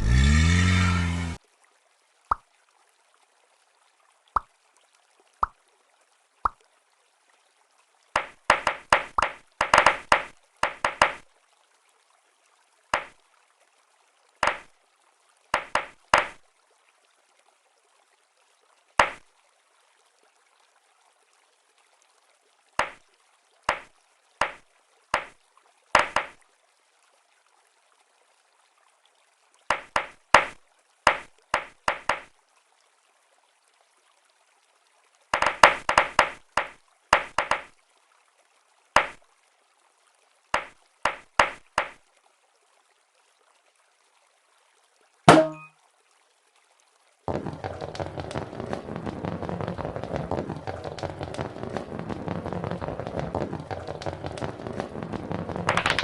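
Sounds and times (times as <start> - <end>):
toy cars clicking and clacking: 55.7 - 56.0.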